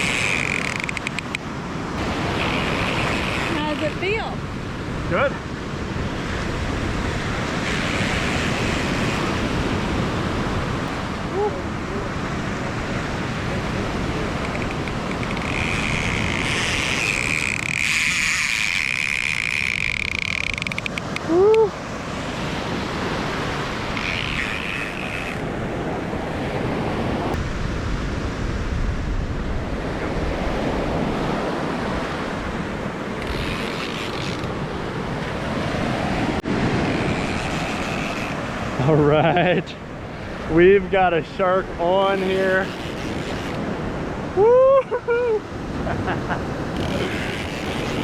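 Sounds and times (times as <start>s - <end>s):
surf breaking on beach: 0.0s - 19.2s, 21.1s - 48.0s
wind buffeting microphone: 25.4s - 33.6s.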